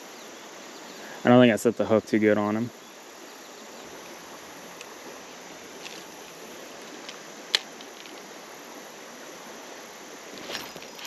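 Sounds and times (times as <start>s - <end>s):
creek water rushing: 0.0s - 11.0s
faint ticks: 3.8s - 8.3s.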